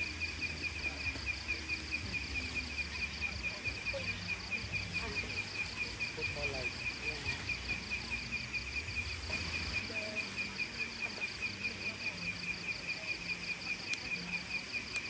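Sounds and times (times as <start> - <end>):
insect chirping: 0.0 - 15.0.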